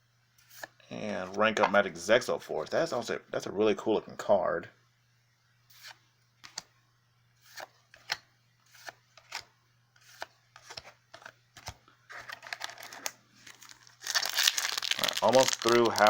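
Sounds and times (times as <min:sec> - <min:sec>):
cards sliding and rubbing: 0:00.4 - 0:00.8, 0:05.7 - 0:06.6, 0:07.4 - 0:13.8.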